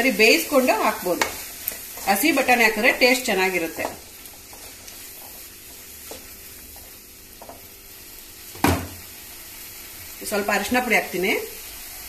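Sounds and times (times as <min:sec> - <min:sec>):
vegetables sizzling in a pan: 0:00.0 - 0:12.0
wooden spatula stirring and scraping: 0:00.1 - 0:07.7.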